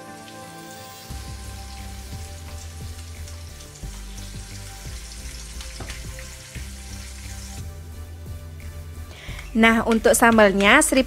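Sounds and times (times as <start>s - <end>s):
shrimp sizzling in hot oil: 0.0s - 8.0s
background music with bass: 0.0s - 11.0s.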